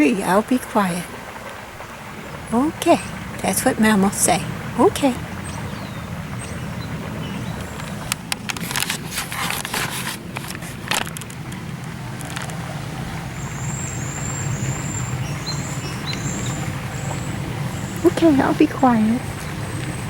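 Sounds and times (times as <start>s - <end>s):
bird chirping: 2.9s - 8.2s, 13.0s - 20.0s
low rumble: 11.1s - 20.0s.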